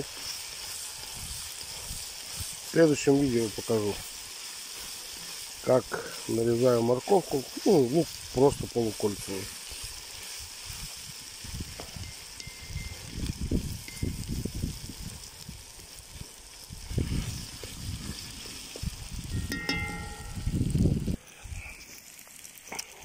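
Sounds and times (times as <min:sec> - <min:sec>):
onions and meat sizzling: 0:00.0 - 0:23.0
short ringing tone: 0:19.4 - 0:20.6.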